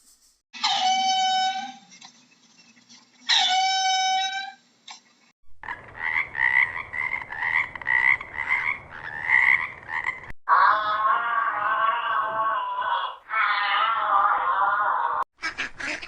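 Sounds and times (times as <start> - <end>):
frog croaking: 5.6 - 10.3
wavering animal call: 8.4 - 15.2.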